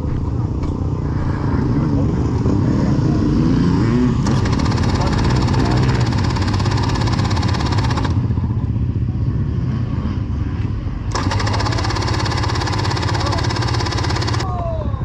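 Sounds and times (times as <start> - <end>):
electric starter cranking engine: 4.2 - 8.2, 11.1 - 14.5.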